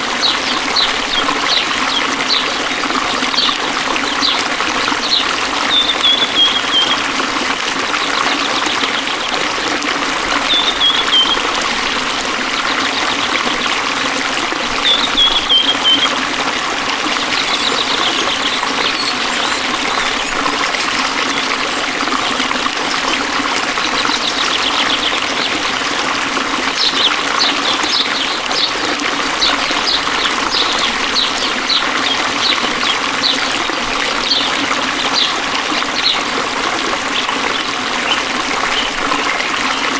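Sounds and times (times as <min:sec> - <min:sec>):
stream flowing and trickling: 0:00.0 - 0:39.9
bird calls: 0:00.1 - 0:07.2, 0:10.3 - 0:11.6, 0:14.8 - 0:16.2, 0:16.9 - 0:21.8, 0:26.7 - 0:36.4
quick bird chirps: 0:17.4 - 0:20.4.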